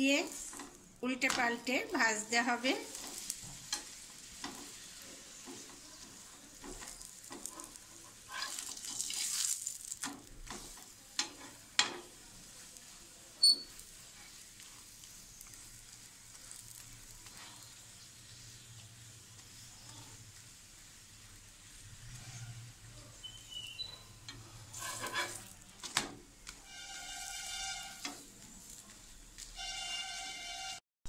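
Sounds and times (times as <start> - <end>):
flatbread sizzling in oil: 0.0 - 30.8
metal spatula scraping pan: 2.4 - 12.2, 23.9 - 25.6, 26.6 - 28.8, 29.4 - 30.8.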